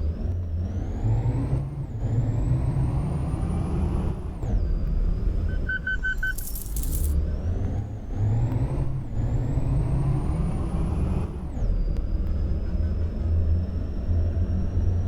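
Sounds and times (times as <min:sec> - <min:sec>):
short beeps: 0:05.6 - 0:06.4.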